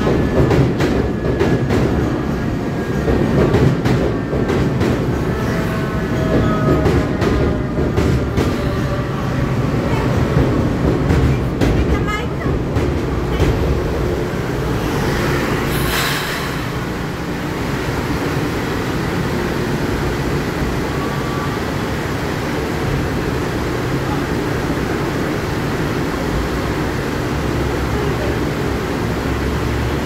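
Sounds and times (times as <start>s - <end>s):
electric train stopping: 0.0s - 11.6s, 12.4s - 30.0s
air hiss: 15.7s - 16.9s.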